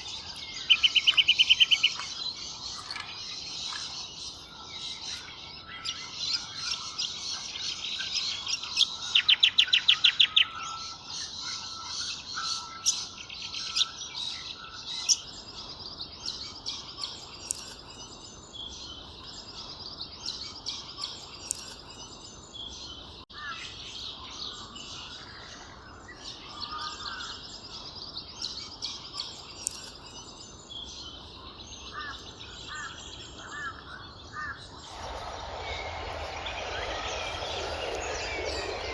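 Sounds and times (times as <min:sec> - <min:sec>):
small birds chirping: 0:00.0 - 0:38.9
rapid run of sharp bird notes: 0:34.8 - 0:38.9.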